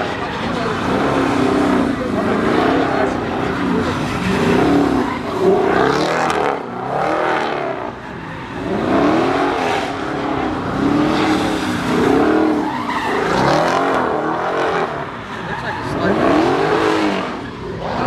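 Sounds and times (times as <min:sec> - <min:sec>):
car engine revving hard: 0:00.0 - 0:18.0.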